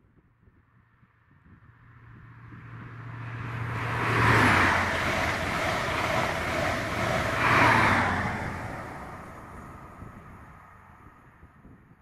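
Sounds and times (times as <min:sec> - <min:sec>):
diesel train passing at speed: 0:01.6 - 0:11.7
wheel and rail noise: 0:02.6 - 0:11.4.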